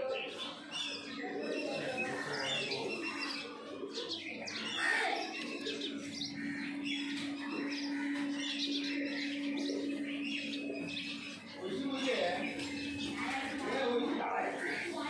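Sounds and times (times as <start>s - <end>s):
small birds chirping: 0.0s - 15.0s
steady low hum: 1.6s - 15.0s.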